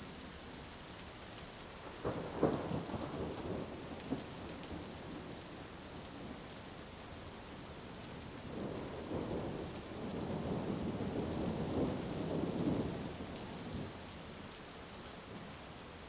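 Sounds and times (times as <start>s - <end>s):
heavy rain: 0.0s - 16.0s
thunder rumbling: 1.9s - 5.5s, 8.4s - 13.9s.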